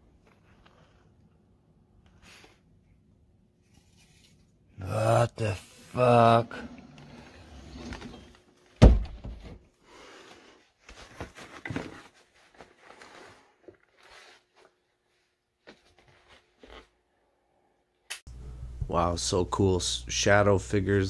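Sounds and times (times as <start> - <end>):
loud thump: 8.8 - 9.6.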